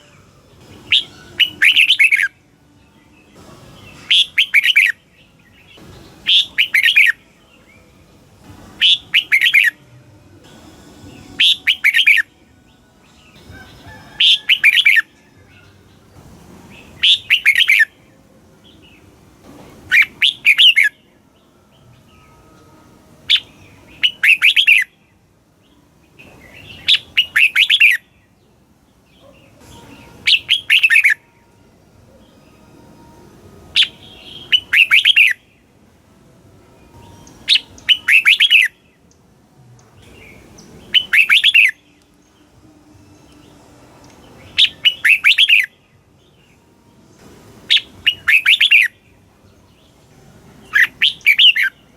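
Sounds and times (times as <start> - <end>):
bird singing rapid phrases: 0.0 - 7.9, 8.8 - 9.8, 11.1 - 16.1, 16.7 - 19.0, 19.9 - 22.3, 23.3 - 31.3, 33.8 - 35.7, 37.1 - 42.6, 43.2 - 46.6, 47.7 - 51.9.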